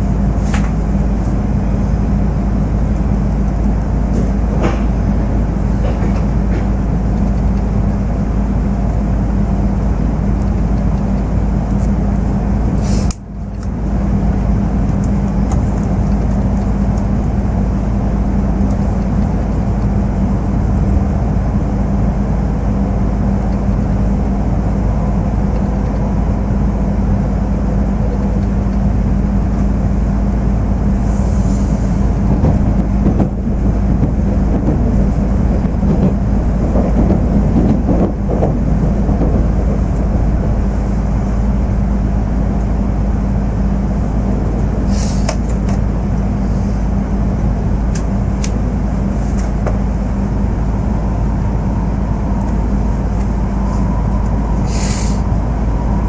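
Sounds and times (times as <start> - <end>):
train cabin rumble and hum: 0.0 - 56.0.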